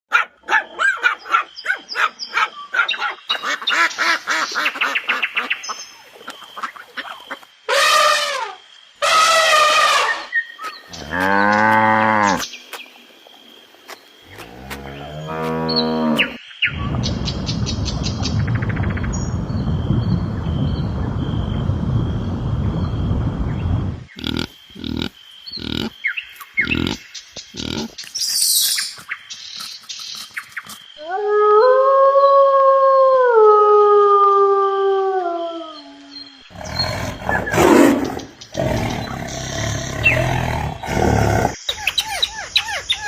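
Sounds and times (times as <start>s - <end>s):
high falling animal calls: 6.2s - 12.6s, 24.2s - 31.5s, 35.6s - 43.0s
chattering animal calls: 24.2s - 26.0s, 26.6s - 30.9s, 36.5s - 43.0s
low drawn-out animal calls: 24.2s - 26.0s, 26.6s - 28.0s, 31.0s - 43.0s.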